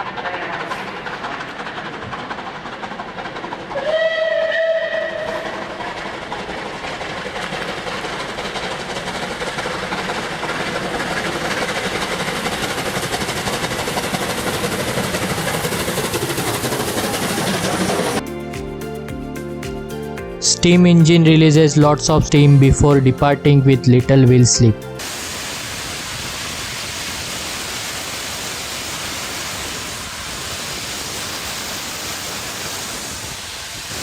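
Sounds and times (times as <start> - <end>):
running train noise: 0.0 - 18.2, 20.3 - 34.0
steam locomotive whistle: 3.8 - 5.7.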